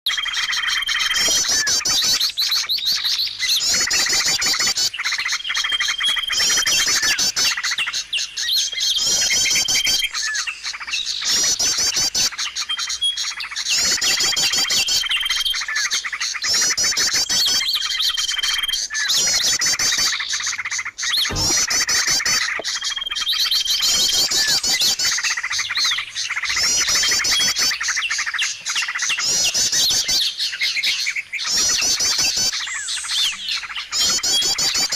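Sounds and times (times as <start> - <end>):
songbird chirping: 0.1 - 34.9
sharp knock: 21.3 - 22.7.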